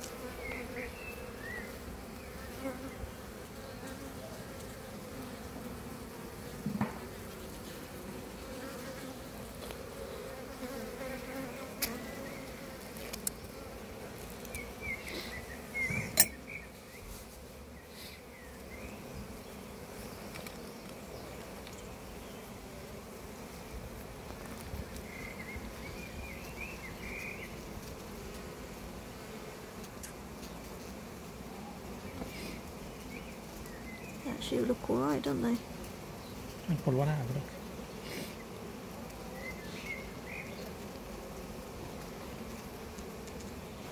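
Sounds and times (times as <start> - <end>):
bees buzzing: 0.0 - 43.9
knocks and clinks of hive frames: 15.8 - 16.6.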